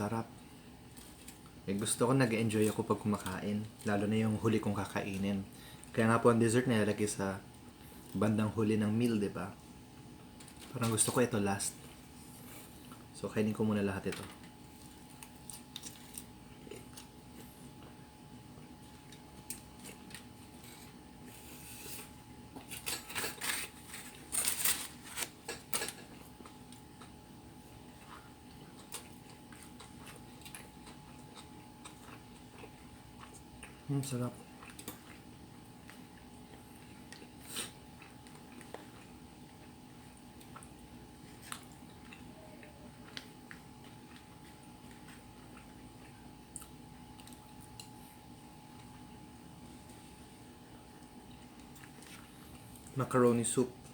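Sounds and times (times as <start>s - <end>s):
faint steady hum: 0.0s - 53.9s
food packaging clicks and crinkles: 0.9s - 4.1s, 10.2s - 11.3s, 14.0s - 17.4s, 21.9s - 27.2s
person chewing food: 14.4s - 53.0s.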